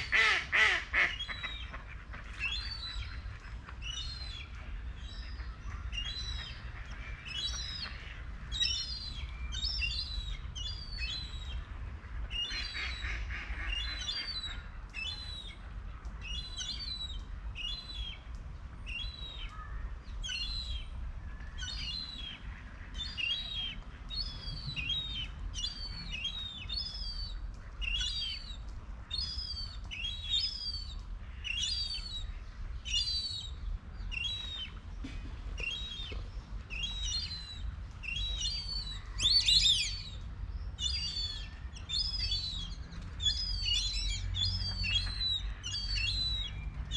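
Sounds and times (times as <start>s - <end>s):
bird chirping: 23.0s - 46.9s.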